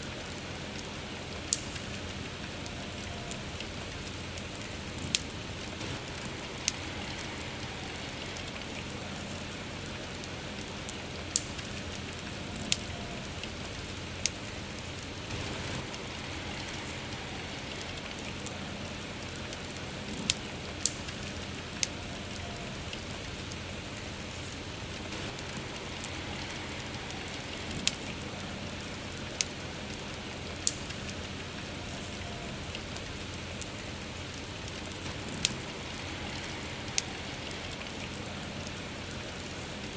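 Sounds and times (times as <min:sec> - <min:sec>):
steady rain: 0:00.0 - 0:39.9
wood fire crackling pops: 0:00.0 - 0:39.9.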